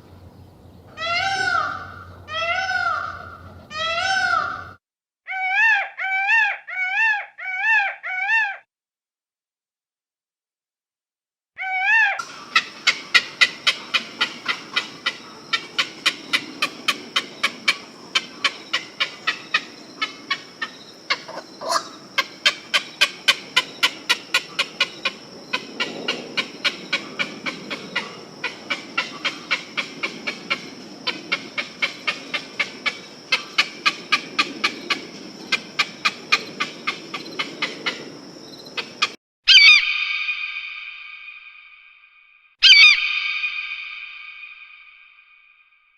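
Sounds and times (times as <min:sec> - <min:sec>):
wavering bird call: 0:01.0 - 0:04.7, 0:11.6 - 0:25.2, 0:38.8 - 0:41.5, 0:42.6 - 0:44.8
bird repeating sharp call: 0:39.5 - 0:41.7, 0:42.6 - 0:45.0.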